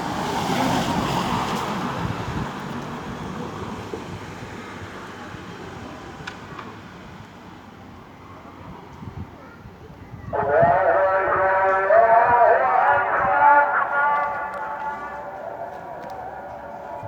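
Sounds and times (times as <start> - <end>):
road traffic: 0.0 - 17.0
vehicle passing: 10.6 - 17.0.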